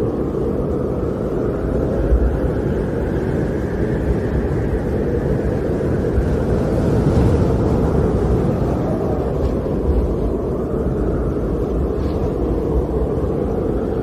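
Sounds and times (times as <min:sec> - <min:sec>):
snowstorm wind blowing: 0:00.0 - 0:14.0.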